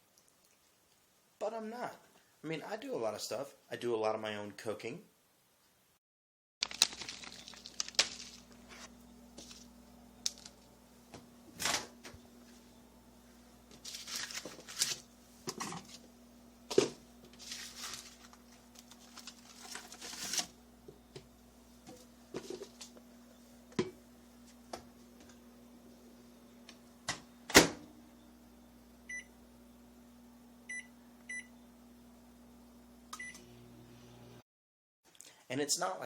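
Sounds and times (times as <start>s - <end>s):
microwave oven beeps: 26.2s - 32.0s, 33.1s - 33.9s.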